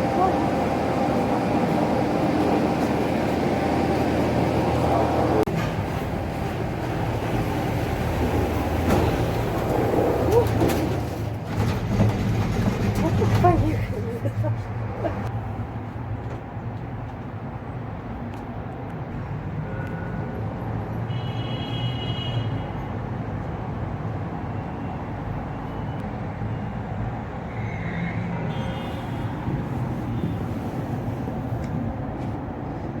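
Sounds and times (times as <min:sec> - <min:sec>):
city traffic hum: 0:00.0 - 0:33.0.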